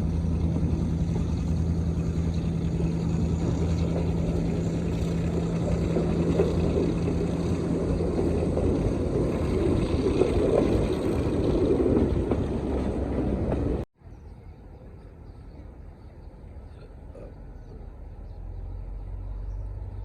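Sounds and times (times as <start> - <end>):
diesel locomotive running: 0.0 - 13.9
quiet outdoor background: 0.0 - 20.0.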